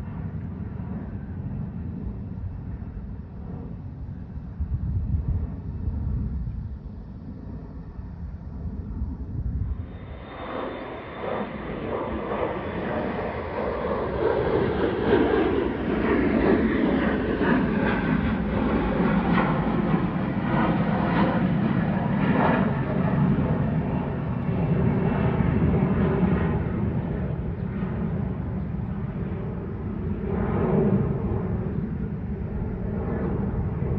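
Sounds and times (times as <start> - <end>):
airplane engines at takeoff: 0.0 - 33.9
faint high whine: 2.4 - 14.8.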